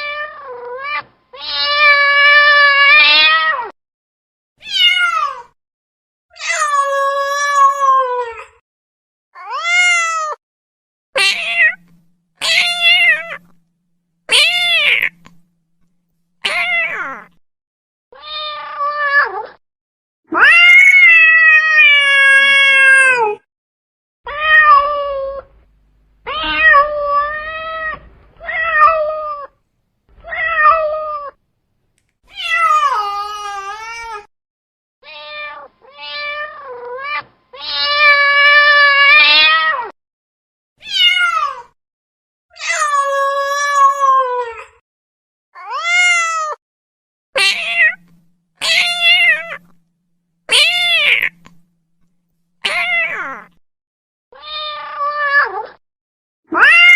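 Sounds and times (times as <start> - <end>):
cat meowing: 0.0 - 3.7, 4.6 - 5.5, 11.2 - 13.6, 14.3 - 15.5, 16.4 - 17.4, 18.2 - 19.6, 24.3 - 25.6, 26.2 - 31.4, 32.3 - 34.3, 35.0 - 39.9, 40.8 - 41.7, 47.4 - 49.8, 50.5 - 51.7, 52.6 - 53.6, 54.4 - 55.8, 56.5 - 56.9.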